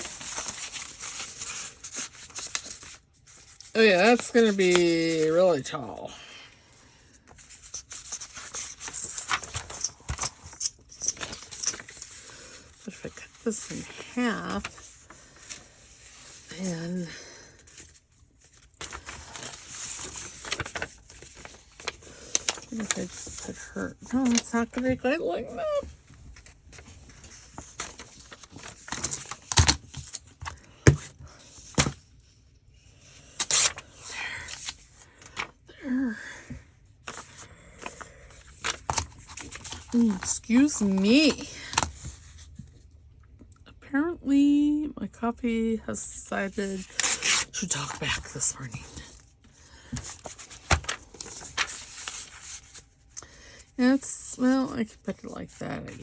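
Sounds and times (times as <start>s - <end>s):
paper rustling and sliding: 0.0s - 5.8s, 7.2s - 32.0s, 34.5s - 35.5s, 37.0s - 42.6s, 49.8s - 53.0s.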